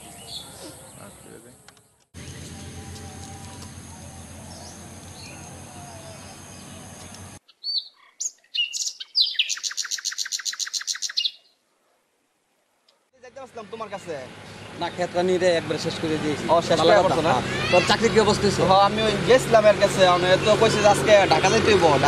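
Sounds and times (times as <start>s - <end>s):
bird chirps and whistles: 7.5s - 11.5s
fast bird trill: 7.5s - 11.5s.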